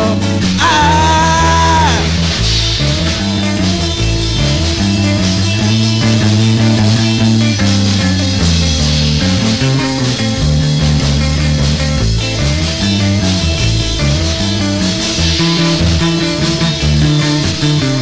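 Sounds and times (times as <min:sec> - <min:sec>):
bass guitar: 0:00.0 - 0:18.0
drums: 0:00.0 - 0:18.0
electric guitar: 0:00.0 - 0:18.0.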